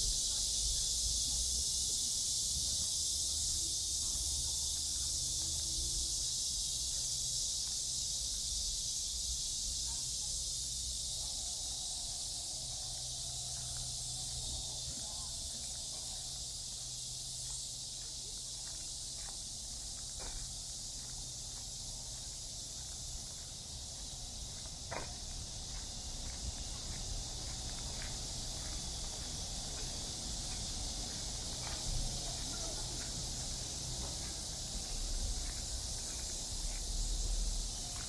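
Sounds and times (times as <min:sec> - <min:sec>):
cicadas droning: 0:00.0 - 0:38.0
faint voices: 0:31.1 - 0:36.3.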